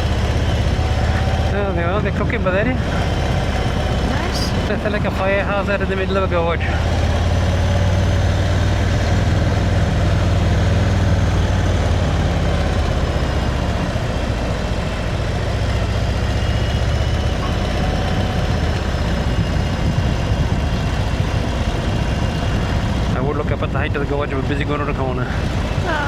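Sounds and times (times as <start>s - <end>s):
motorcycle engine rumble: 0.0s - 26.0s
road noise: 0.0s - 26.0s
wind noise: 6.7s - 26.0s.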